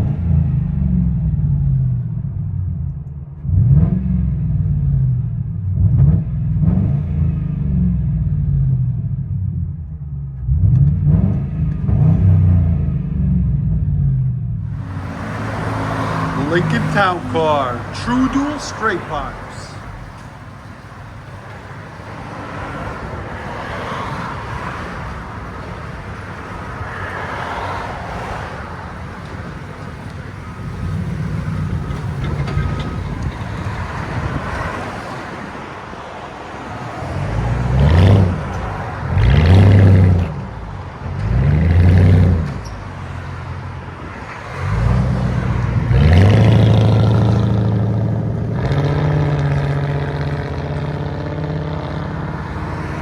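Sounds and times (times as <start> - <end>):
car engine revving: 14.7 - 27.0, 37.2 - 43.7, 44.6 - 53.0.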